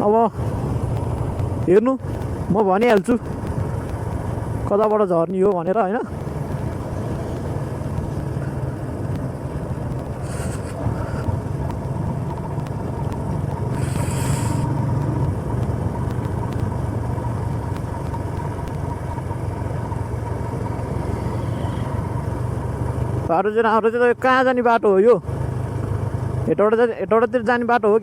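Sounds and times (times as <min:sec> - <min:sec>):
motorcycle engine running: 0:00.0 - 0:28.0
road and wind noise: 0:00.0 - 0:28.0
brief hiss: 0:13.8 - 0:14.6.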